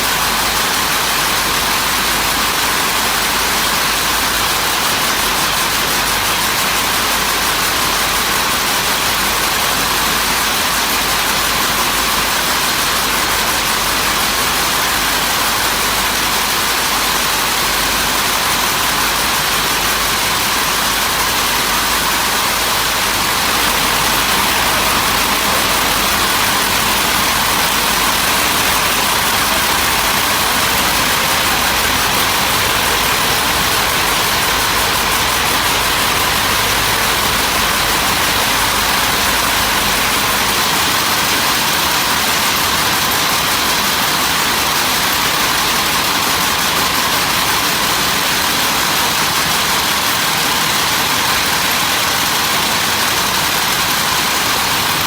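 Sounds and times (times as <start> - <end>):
machinery din: 23.0 - 40.7.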